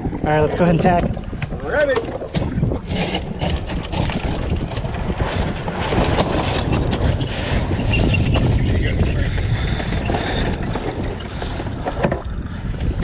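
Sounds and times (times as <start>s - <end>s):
wind buffeting microphone: 0.0s - 13.0s
boat gear clicking and knocking: 0.9s - 7.1s.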